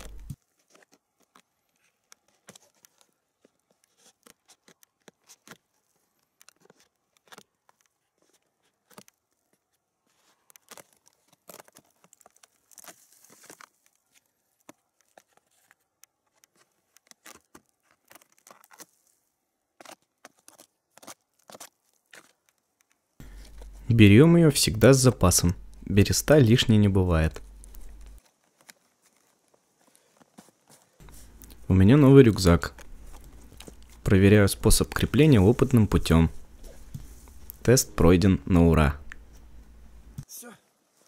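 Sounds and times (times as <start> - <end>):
bark crackling and snapping: 10.4 - 18.9.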